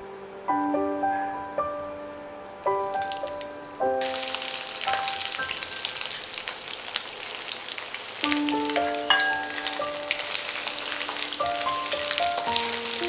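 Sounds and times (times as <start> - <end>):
background music: 0.0 - 5.4, 8.2 - 13.0
fish deep-frying in oil: 2.7 - 13.0.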